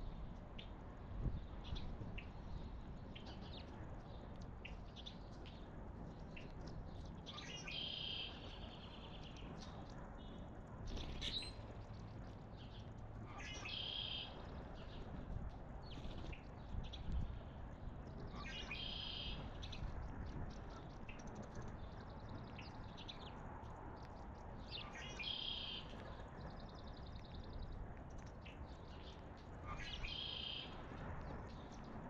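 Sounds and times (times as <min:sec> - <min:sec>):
low outdoor rumble: 0:00.0 - 0:32.0
songbirds chirping: 0:00.0 - 0:32.0
trilled birdsong: 0:24.0 - 0:27.8.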